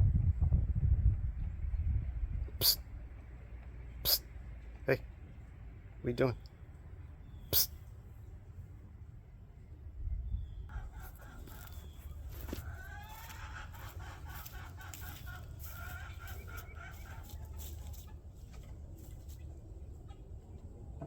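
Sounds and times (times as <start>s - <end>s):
chickens clucking: 10.7s - 21.0s.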